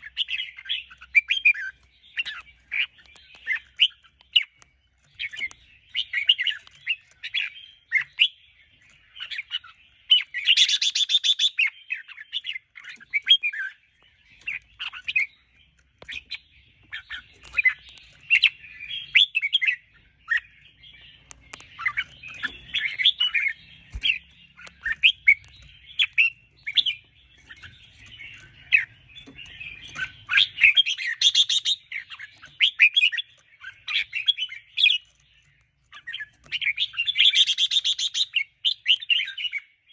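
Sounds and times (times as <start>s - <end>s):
bird chirping song: 0.0s - 39.9s
harsh bird rattling: 21.2s - 38.2s.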